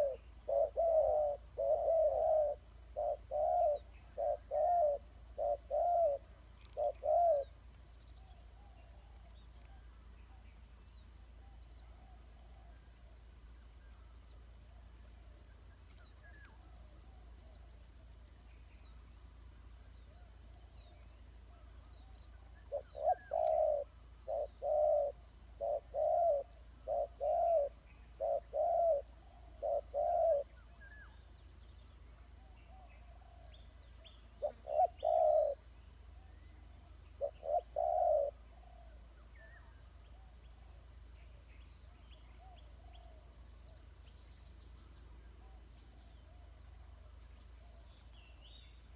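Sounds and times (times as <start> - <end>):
dove cooing: 0.0 - 7.6, 22.0 - 30.7, 32.7 - 35.7, 37.1 - 40.8
faint small bird chirps: 0.0 - 48.9.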